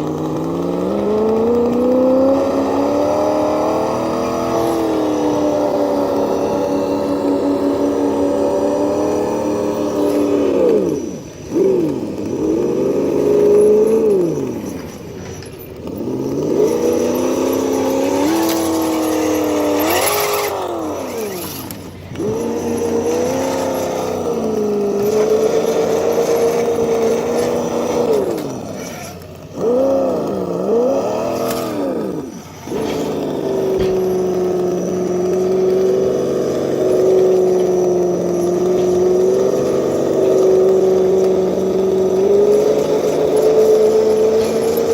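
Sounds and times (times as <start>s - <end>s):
simulated engine sound from small speaker: 0.0s - 44.9s.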